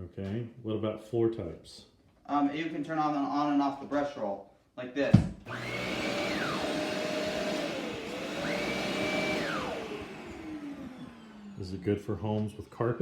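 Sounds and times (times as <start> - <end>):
high whine of brush roll: 5.5 - 11.8
vacuum cleaner motor running: 5.5 - 12.0.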